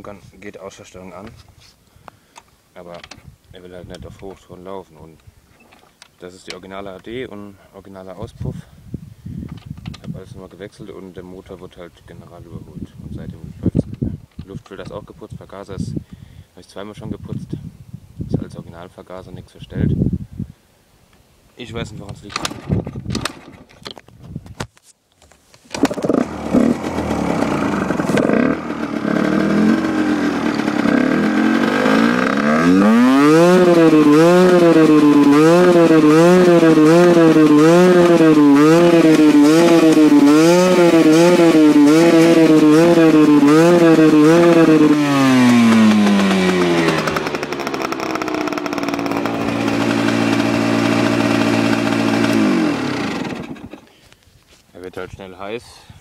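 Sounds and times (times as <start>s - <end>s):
dirt bike engine revving unevenly: 25.8s - 53.8s.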